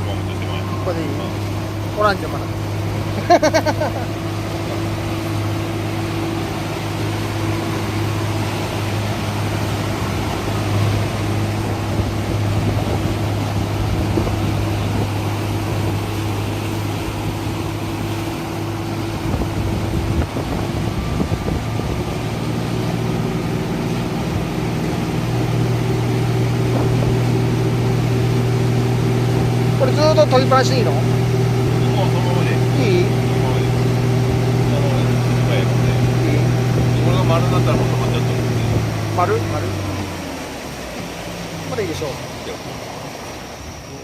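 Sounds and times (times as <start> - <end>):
motorboat engine humming: 0.0 - 44.0
water noise: 0.0 - 44.0
wind: 0.0 - 44.0.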